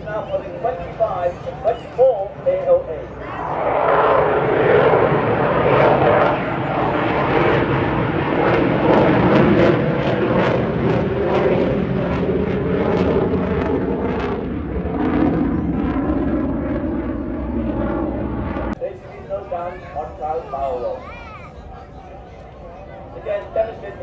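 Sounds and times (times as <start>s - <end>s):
jet roar: 0.0s - 24.0s.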